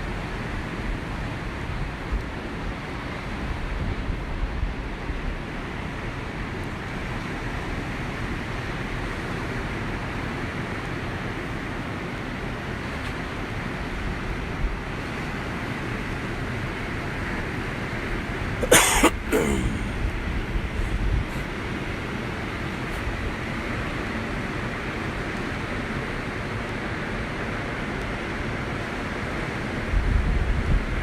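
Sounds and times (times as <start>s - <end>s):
cough-like burst: 18.6s - 20.1s
rushing wind: 18.6s - 23.6s.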